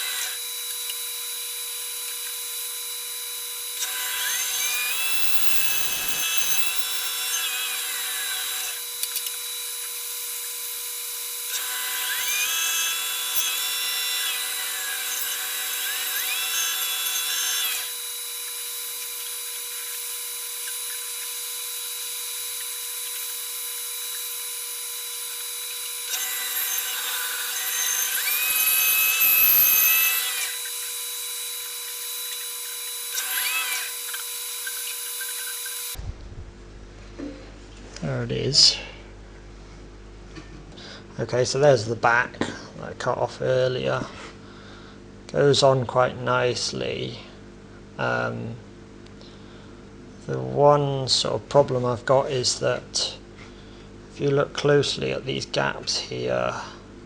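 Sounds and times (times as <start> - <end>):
bandsaw running: 0.0 - 0.6, 1.2 - 36.0
bandsaw cutting through wood: 0.0 - 36.0.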